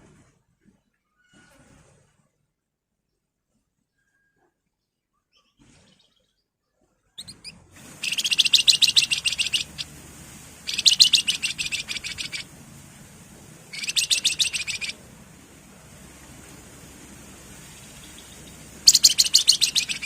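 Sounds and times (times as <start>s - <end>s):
songbird rapid high notes: 7.2s - 20.0s.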